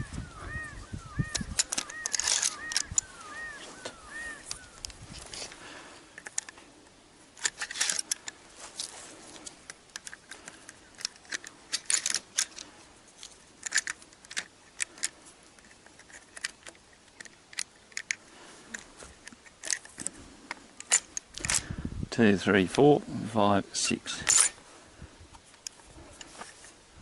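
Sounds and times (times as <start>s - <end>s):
sharp clicks and light rattles: 6.2s - 6.6s, 9.4s - 21.6s.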